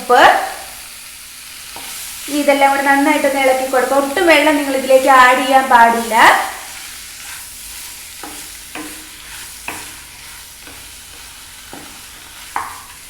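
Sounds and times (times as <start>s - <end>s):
chicken sizzling in a pan: 0.0s - 13.0s
utensil scraping and knocking pan: 7.2s - 13.0s.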